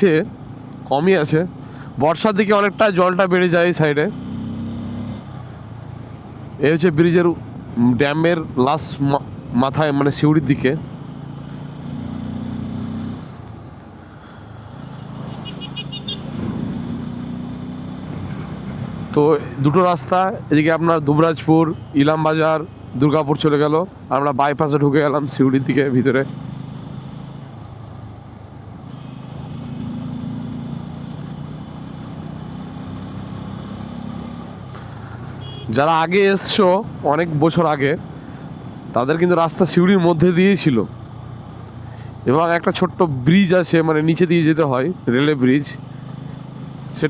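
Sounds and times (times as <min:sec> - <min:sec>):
road and wind noise: 0:00.0 - 0:47.0
motorcycle engine running: 0:10.5 - 0:19.4, 0:25.9 - 0:35.9.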